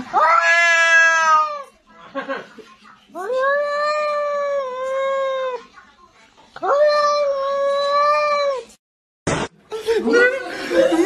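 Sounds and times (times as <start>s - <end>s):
cat yowling: 0.1s - 1.7s.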